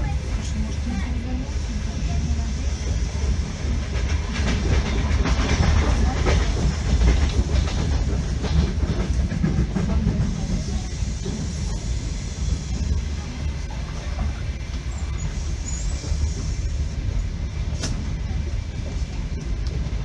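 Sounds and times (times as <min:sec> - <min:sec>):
train rumbling on track: 0:00.0 - 0:20.0
train wheels clacking over rail joints: 0:03.6 - 0:15.3.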